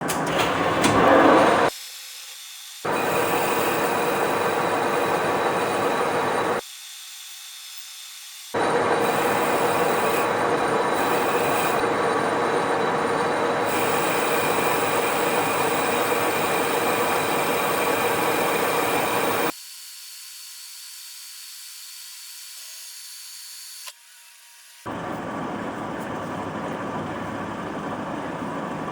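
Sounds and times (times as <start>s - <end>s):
metal lathe cutting metal: 0.1s - 1.7s, 2.9s - 6.6s, 8.6s - 19.5s.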